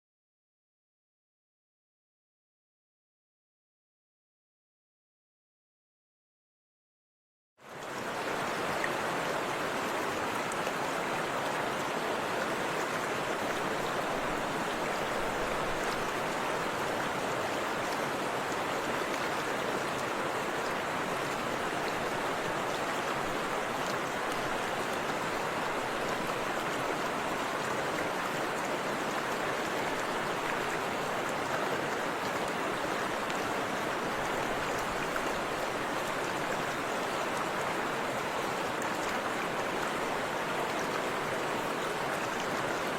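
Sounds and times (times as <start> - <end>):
river water splashing over rocks: 7.8 - 42.9.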